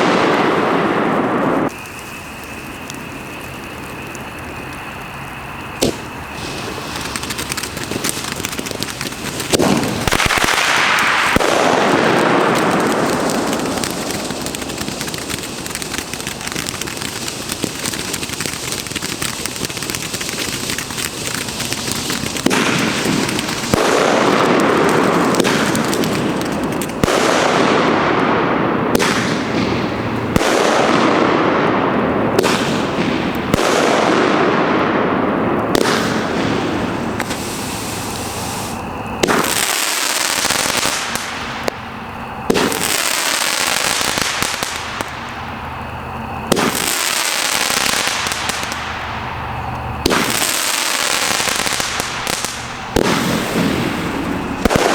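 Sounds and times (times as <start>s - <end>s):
fireworks exploding: 0.0s - 54.9s
fireworks hissing: 0.0s - 54.9s.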